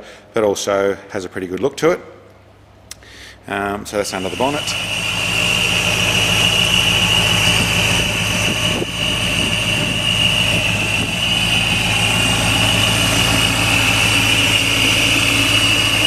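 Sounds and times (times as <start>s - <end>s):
engine idling: 3.9s - 16.0s
supercharger whine: 3.9s - 16.0s.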